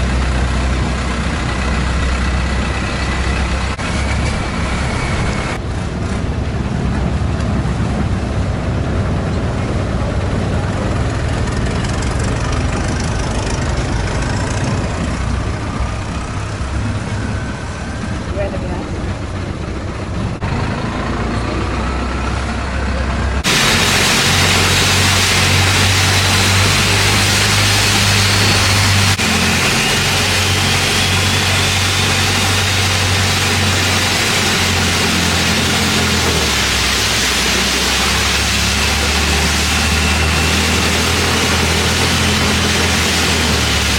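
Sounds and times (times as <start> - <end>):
boat engine droning: 0.0 - 43.9
constant rush: 22.3 - 43.9.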